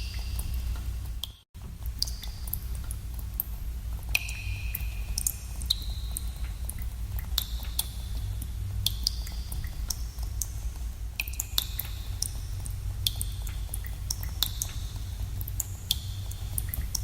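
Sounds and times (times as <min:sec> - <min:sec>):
water drops dripping into pool: 0:00.0 - 0:10.6, 0:11.2 - 0:17.0.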